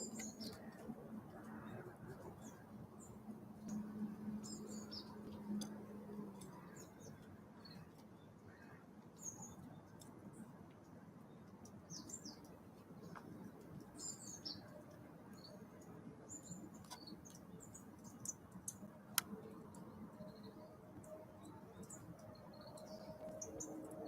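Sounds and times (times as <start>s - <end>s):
small songbirds chirping: 0.0s - 24.0s.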